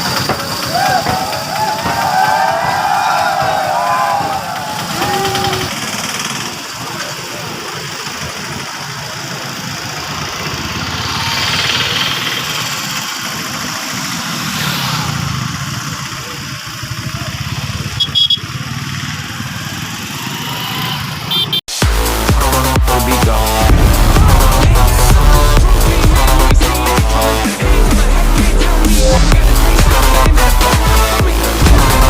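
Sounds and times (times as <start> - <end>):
engine running with low rumble: 23.2 - 32.0.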